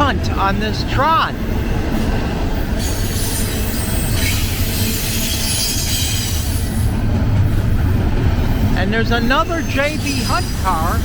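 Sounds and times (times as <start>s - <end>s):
freight train wheels rumbling: 0.0s - 11.0s
high wheel squeal: 2.8s - 6.9s, 9.2s - 11.0s.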